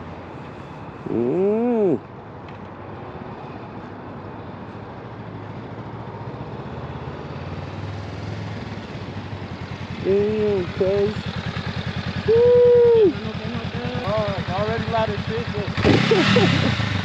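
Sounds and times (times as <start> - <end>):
motorcycle engine rumbling: 8.3 - 17.0.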